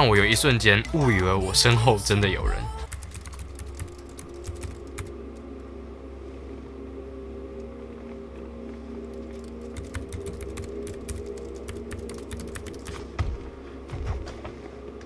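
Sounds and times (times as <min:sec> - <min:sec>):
typing on computer keyboard: 0:02.9 - 0:05.1, 0:09.8 - 0:13.0.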